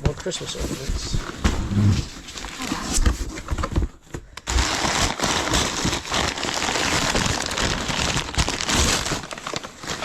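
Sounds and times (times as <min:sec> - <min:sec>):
wrapping material crinkling: 0:04.5 - 0:10.0.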